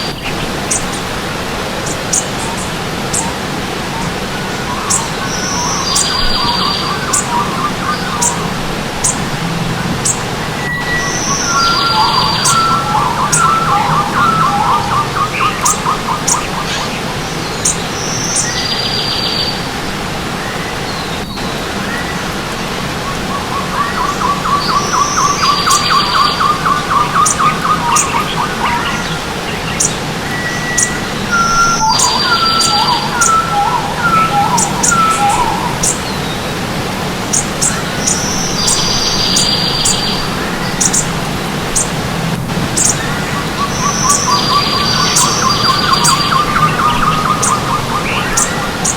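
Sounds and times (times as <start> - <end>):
birds singing and calling: 0.0 - 48.9
stream water running: 0.0 - 48.9.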